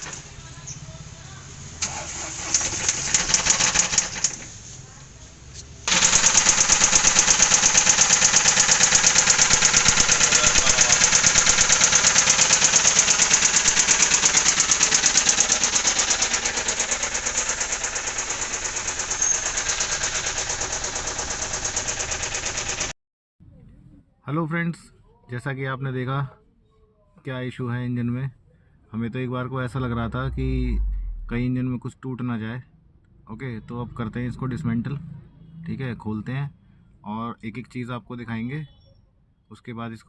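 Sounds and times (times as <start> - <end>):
rapid engine knocking: 1.8 - 4.4, 5.9 - 22.9
diesel engine running: 5.2 - 22.9, 29.6 - 31.7.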